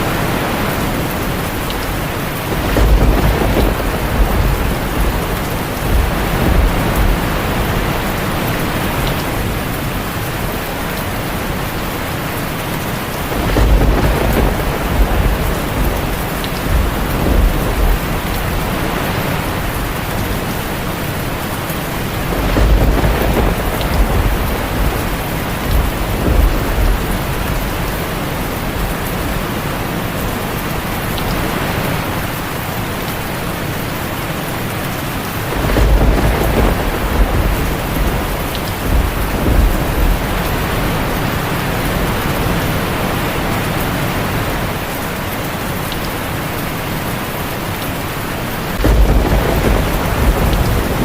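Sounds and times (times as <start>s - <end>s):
thunder rolling: 0.0s - 11.6s, 13.0s - 29.5s, 35.5s - 43.1s, 48.7s - 51.0s
heavy rain on a tin roof: 0.0s - 51.0s.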